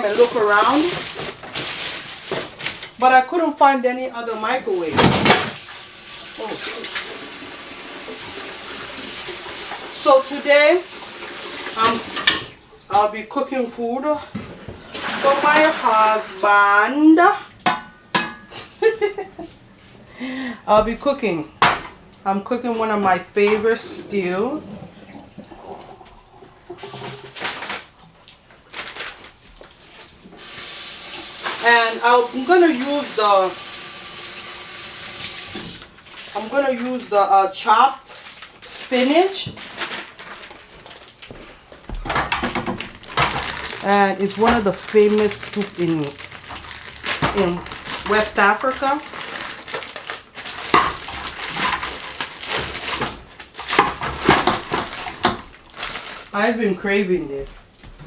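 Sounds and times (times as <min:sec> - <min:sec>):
food packaging crinkling: 0:00.0 - 0:03.0, 0:26.8 - 0:30.7, 0:35.5 - 0:37.1, 0:37.8 - 0:58.0
pots and utensils knocking: 0:11.6 - 0:12.6, 0:17.6 - 0:18.7.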